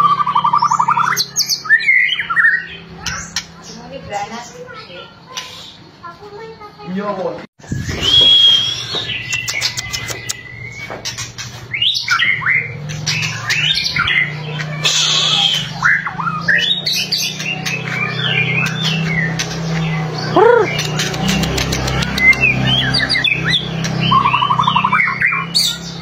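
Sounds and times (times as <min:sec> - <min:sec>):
bird singing whistled phrases: 0:07.7 - 0:11.0, 0:11.7 - 0:19.3, 0:20.3 - 0:26.0
harsh clicking bird rattles: 0:20.8 - 0:22.5.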